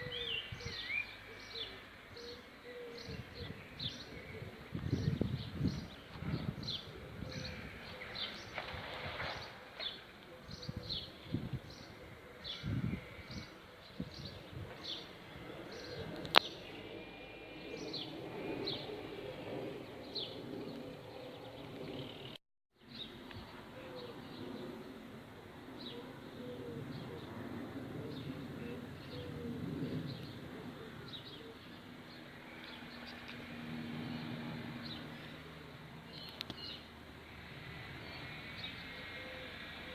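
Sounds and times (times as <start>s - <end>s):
bird chirping: 0.0s - 23.2s.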